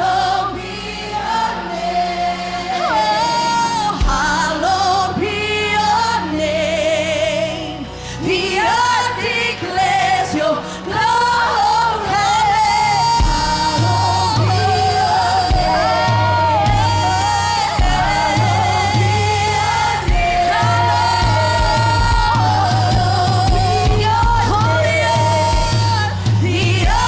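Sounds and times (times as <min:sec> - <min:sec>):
bass line: 0:00.0 - 0:10.0, 0:11.0 - 0:27.0
band accompaniment: 0:02.2 - 0:04.8, 0:12.7 - 0:27.0.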